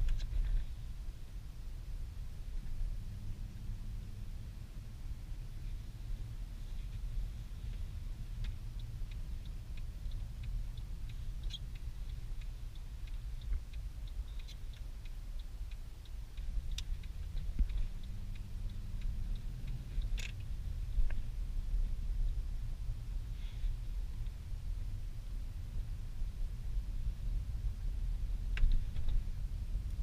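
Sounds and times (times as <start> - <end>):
car engine and tyre rumble: 0.0 - 30.0
light regular ticking: 1.5 - 30.0.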